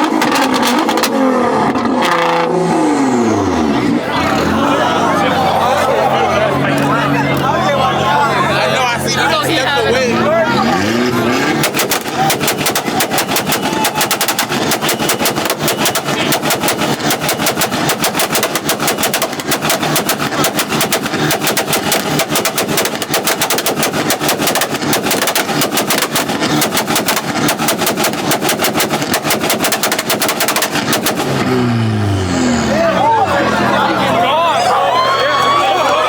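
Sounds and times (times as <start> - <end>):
car exhaust pops and bangs: 0.0 - 2.5, 11.4 - 31.6.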